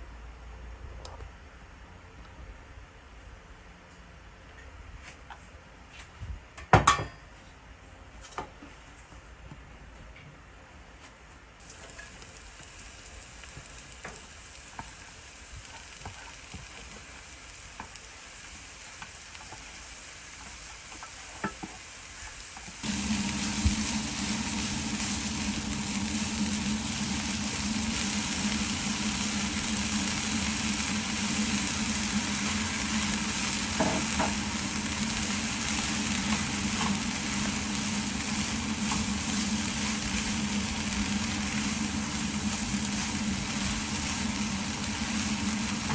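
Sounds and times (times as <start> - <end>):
food sizzling in a pan: 11.6 - 45.9.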